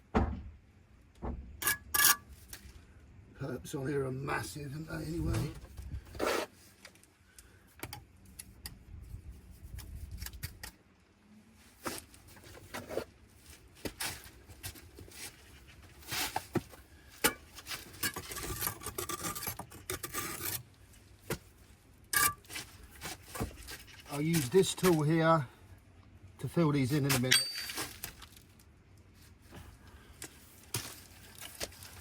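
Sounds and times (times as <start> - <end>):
hand tools scraping brick: 5.2 - 6.6, 17.2 - 20.7.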